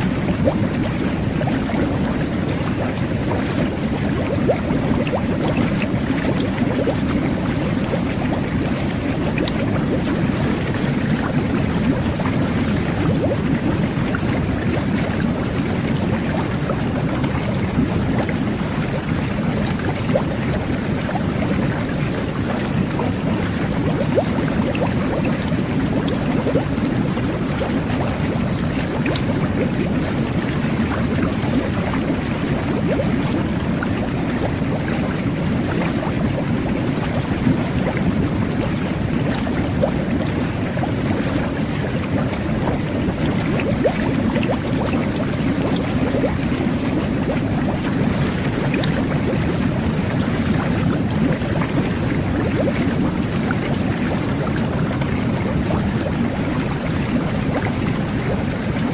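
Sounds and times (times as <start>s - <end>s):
bath jets churning water: 0.0s - 58.9s.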